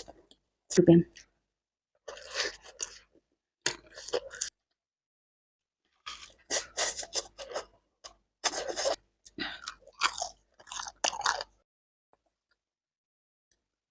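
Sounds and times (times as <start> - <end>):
person chewing noodles: 2.0 - 4.6, 6.0 - 11.6.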